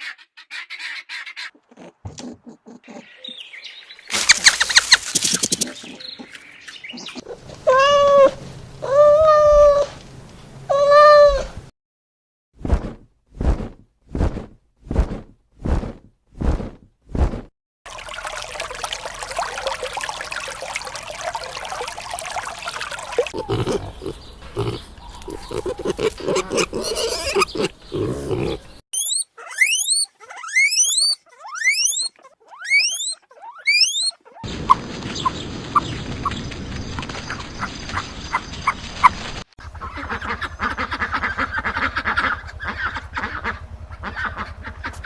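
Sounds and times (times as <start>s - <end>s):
pigs grunting and squealing: 23.2s - 34.4s
bird rising chirps: 23.4s - 34.2s.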